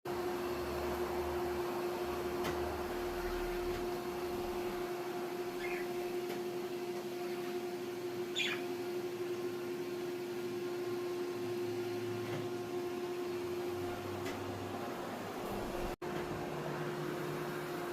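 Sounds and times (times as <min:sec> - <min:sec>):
cockatiel chirping: 0:05.6 - 0:06.0, 0:08.3 - 0:08.7.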